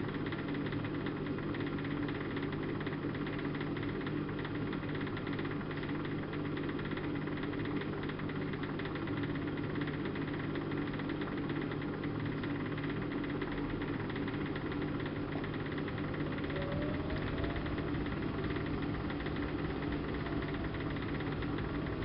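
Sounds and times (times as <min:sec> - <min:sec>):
washing machine hum and drum: 0:00.0 - 0:22.0
faint rising tone: 0:16.1 - 0:21.8.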